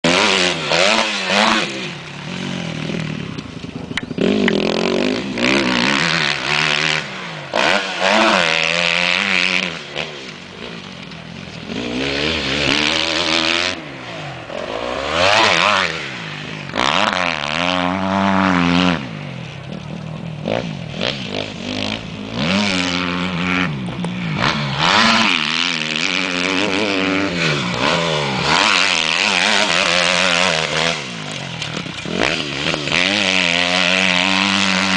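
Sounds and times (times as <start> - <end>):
dirt bike engine revving: 0.0 - 34.9.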